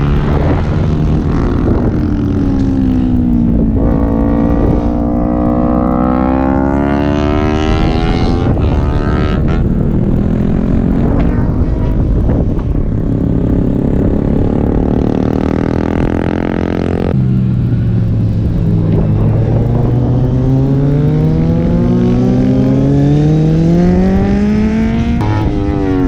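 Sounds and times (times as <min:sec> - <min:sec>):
motorbike engine accelerating: 0:00.0 - 0:26.0.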